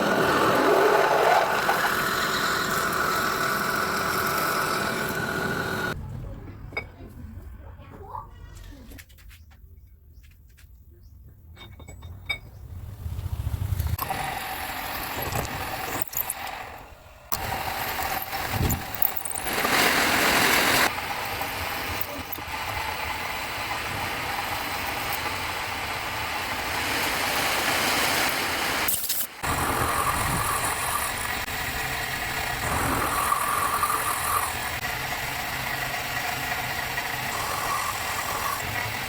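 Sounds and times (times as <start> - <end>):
power tool motor running: 0.0 - 6.0, 14.0 - 25.9, 29.4 - 39.0.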